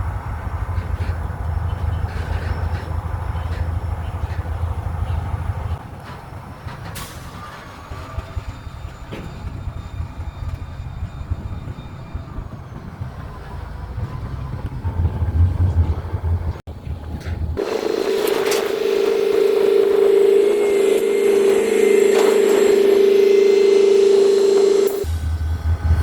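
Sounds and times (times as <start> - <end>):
diesel locomotives rumbling: 0.0 - 26.0
locomotive horn chord: 17.6 - 25.8.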